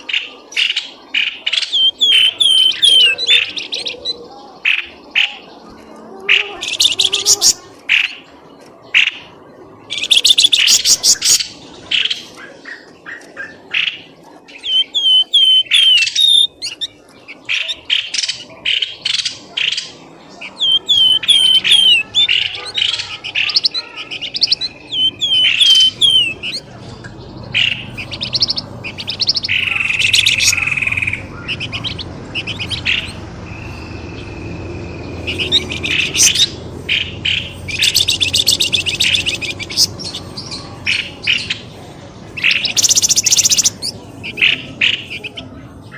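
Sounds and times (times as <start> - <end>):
high bird chirps and trills: 0.0 - 45.9
buzzy bird trill: 1.5 - 4.2, 6.3 - 8.3, 9.8 - 41.7, 42.3 - 45.4
down-slurred whistled bird notes: 1.7 - 3.4, 14.5 - 17.0, 20.5 - 22.2, 24.2 - 26.6.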